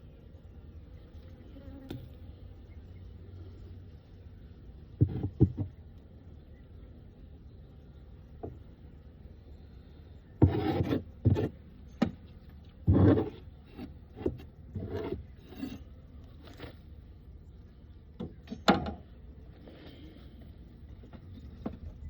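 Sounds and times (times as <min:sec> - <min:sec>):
wooden frames scraping: 0:10.4 - 0:16.9.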